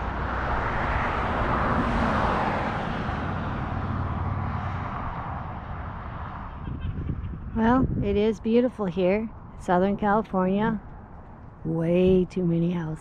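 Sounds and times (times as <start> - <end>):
passing vehicle rushing: 0.0 - 8.3.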